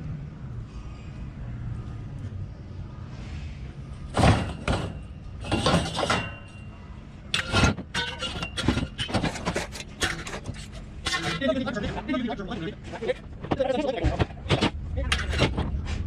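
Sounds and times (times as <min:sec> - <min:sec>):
scrap metal clanging: 0:04.0 - 0:06.7, 0:07.3 - 0:13.1.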